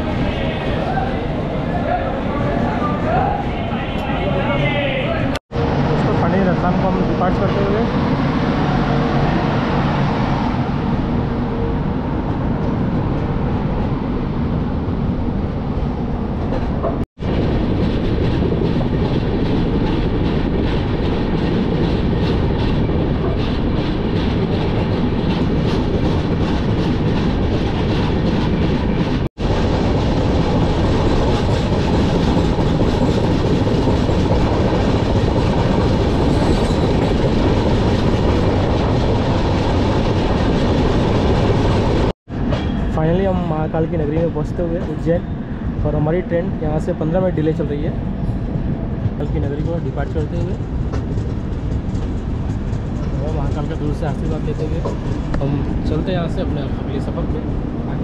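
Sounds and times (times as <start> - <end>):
train wheels clattering on rails: 16.4 - 43.3, 48.4 - 57.3.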